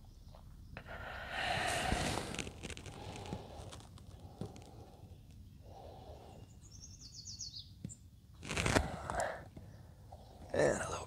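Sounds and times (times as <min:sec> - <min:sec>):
songbird trilling: 0:06.3 - 0:07.7.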